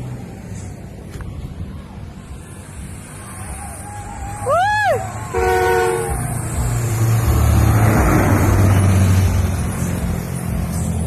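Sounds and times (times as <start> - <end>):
vehicle passing by: 0.0 - 11.0
brief steady horn tone: 5.3 - 6.2.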